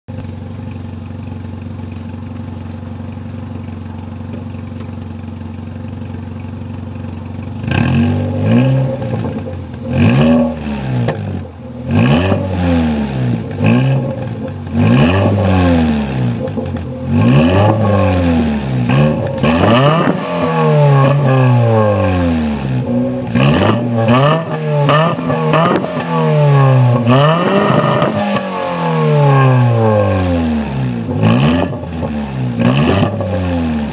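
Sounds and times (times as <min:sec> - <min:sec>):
car engine idling: 0:00.1 - 0:33.9
car engine revving in blips: 0:00.1 - 0:33.9.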